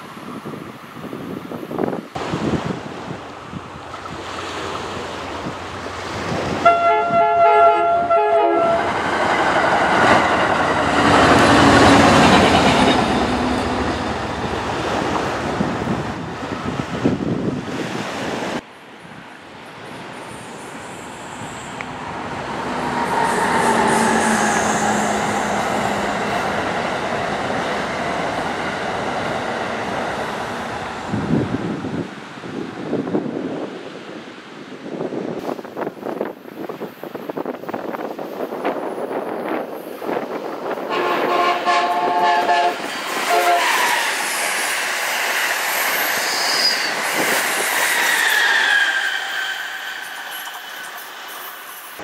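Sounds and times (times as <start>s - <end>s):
wind buffeting microphone: 0.0s - 19.3s, 21.3s - 44.0s
train passing with wheel clatter: 0.0s - 52.0s
train horn short blasts: 6.6s - 9.0s, 40.9s - 44.2s.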